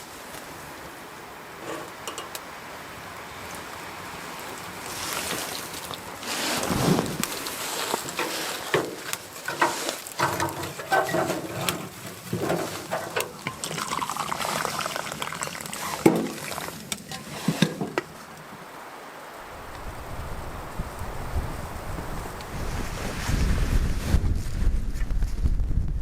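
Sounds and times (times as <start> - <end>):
fire crackling and snapping: 1.8 - 17.3, 19.4 - 25.9
knocks and clatter of handling: 7.8 - 14.0.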